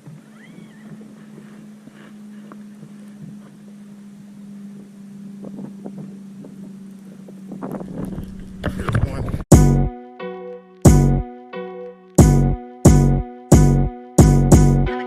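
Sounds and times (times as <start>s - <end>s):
outboard motor running: 0.0s - 8.9s
wind noise: 4.8s - 9.5s.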